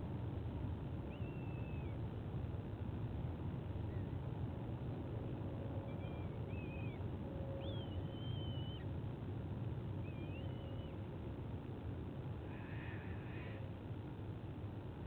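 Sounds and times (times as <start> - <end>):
whistled bird calls: 1.1 - 2.0, 5.8 - 8.9, 10.0 - 11.1.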